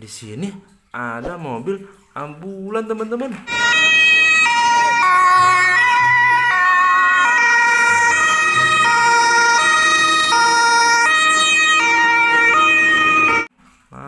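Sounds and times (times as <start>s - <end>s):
electronic ambulance siren: 3.5s - 13.5s.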